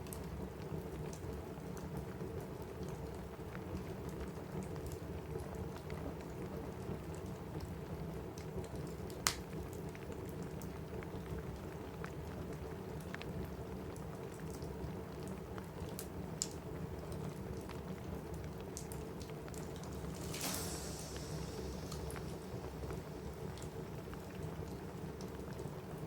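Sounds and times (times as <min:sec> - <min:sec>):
rain on a roof: 0:00.0 - 0:26.0
fireplace crackling and popping: 0:07.1 - 0:26.0.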